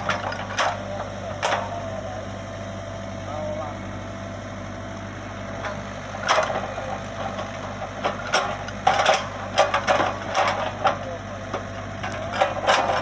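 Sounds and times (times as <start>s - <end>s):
diesel engine running: 0.0s - 13.0s
metallic clanks and knocks: 5.6s - 13.0s.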